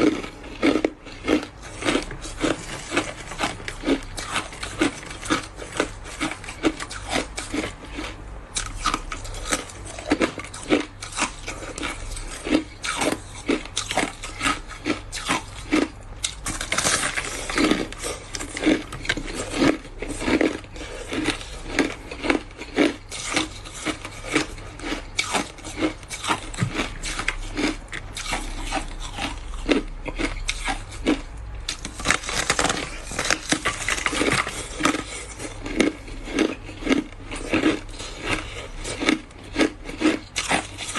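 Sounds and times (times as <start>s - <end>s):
ice being chewed: 0.0s - 40.9s.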